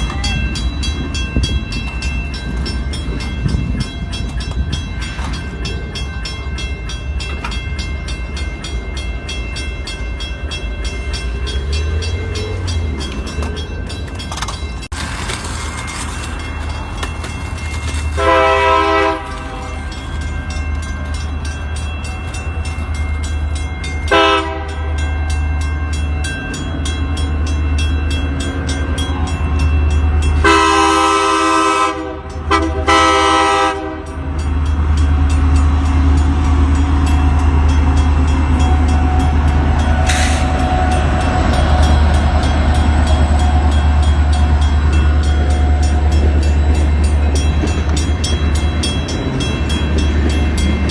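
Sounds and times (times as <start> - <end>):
train rumble: 0.0 - 50.9
locomotive air horn chord: 18.2 - 20.0, 24.1 - 25.5, 30.4 - 34.2.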